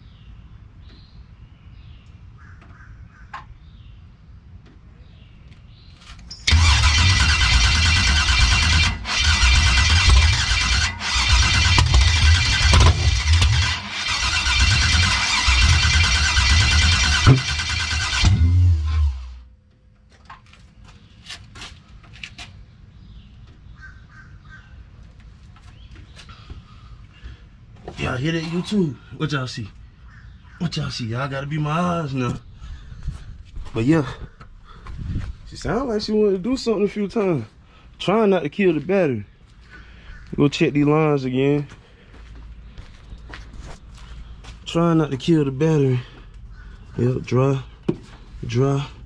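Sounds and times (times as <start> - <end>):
crows cawing: 2.4 - 3.5, 23.7 - 24.8, 30.0 - 30.7, 39.6 - 40.4, 46.1 - 47.0
starter motor cranking engine: 6.5 - 19.4
faint bird chirps: 29.8 - 31.0.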